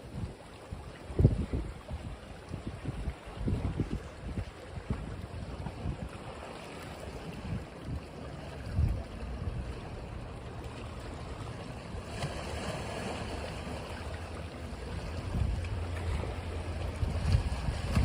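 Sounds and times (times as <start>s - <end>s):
wind gusts on microphone: 0.0s - 10.0s, 14.9s - 18.0s
ocean waves breaking on beach: 0.0s - 18.0s.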